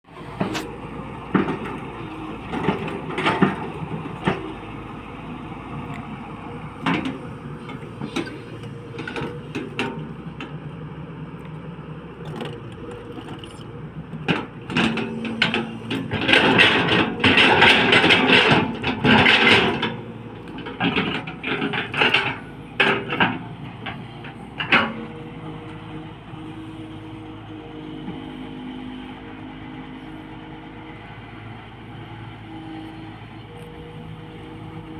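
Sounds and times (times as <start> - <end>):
diesel engine running: 0.0 - 34.9
excavator bucket knocking and scraping: 0.3 - 4.8, 6.7 - 10.6, 12.2 - 30.0.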